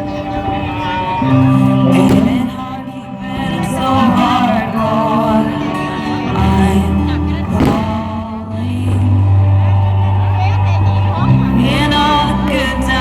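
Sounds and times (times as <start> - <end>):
low bass: 0.0 - 13.0
person singing: 0.0 - 13.0
sharp crack: 1.9 - 2.8, 7.6 - 8.3.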